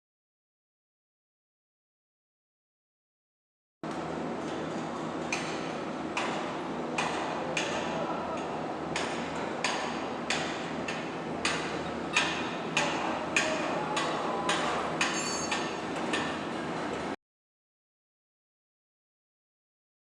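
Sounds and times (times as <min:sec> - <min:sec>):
steady background hum: 0:03.8 - 0:17.2
ringing hammer blows: 0:09.0 - 0:15.9.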